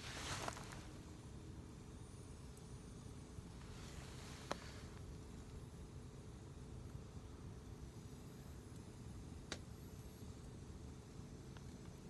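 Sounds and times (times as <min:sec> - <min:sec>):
campfire burning: 0:00.0 - 0:12.0.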